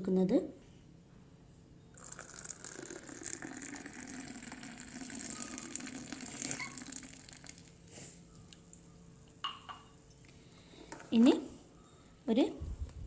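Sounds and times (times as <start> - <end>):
milk pouring and splashing: 2.0 - 7.8.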